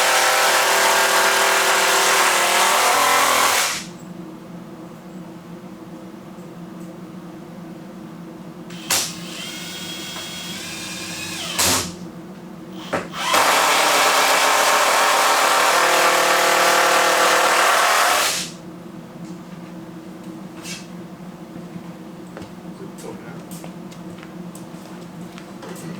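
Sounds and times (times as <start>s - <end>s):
power drill whining: 0.0s - 3.9s, 8.7s - 12.0s, 12.8s - 18.6s.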